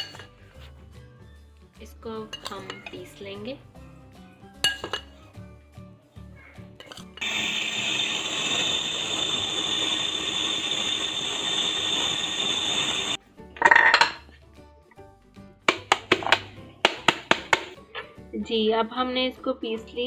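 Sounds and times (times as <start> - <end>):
electric spice grinder grinding: 7.2 - 13.2.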